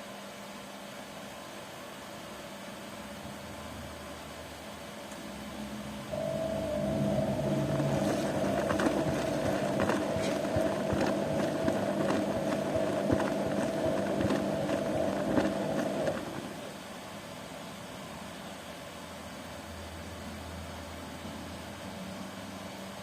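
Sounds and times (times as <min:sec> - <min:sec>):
washing machine motor humming: 0:05.5 - 0:17.1.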